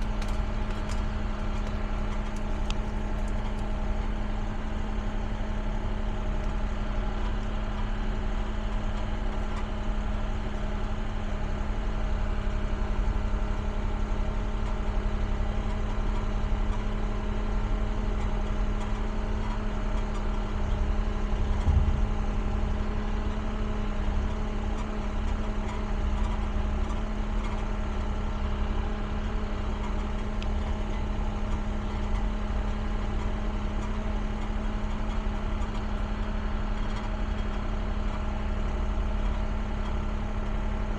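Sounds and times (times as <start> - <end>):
excavator diesel engine humming: 0.0 - 40.9
brief low thump: 21.5 - 22.2.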